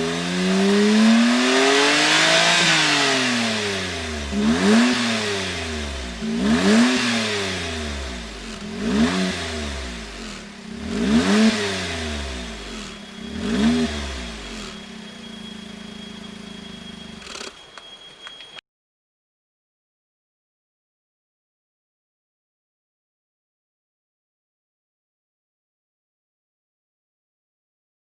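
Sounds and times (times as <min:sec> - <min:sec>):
car engine revving: 0:00.0 - 0:17.5
car engine idling: 0:07.5 - 0:17.8.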